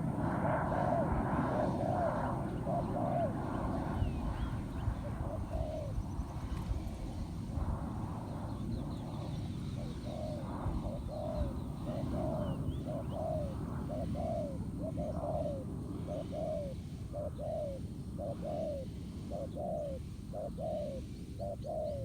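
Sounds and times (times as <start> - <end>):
dove cooing: 0.0 - 6.0, 9.6 - 22.0
small birds chirping: 8.2 - 22.0.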